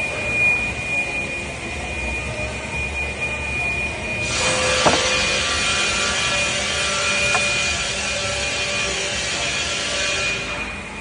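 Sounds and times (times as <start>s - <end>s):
woodworking machinery whining: 3.0s - 10.3s
saw cutting wood: 4.2s - 10.2s
single knock: 4.5s - 5.2s.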